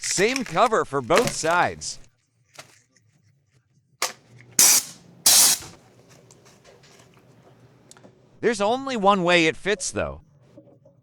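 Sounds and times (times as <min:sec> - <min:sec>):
hissing spray bursts: 0:01.2 - 0:01.6, 0:04.0 - 0:06.9
sharp click: 0:04.0 - 0:05.8.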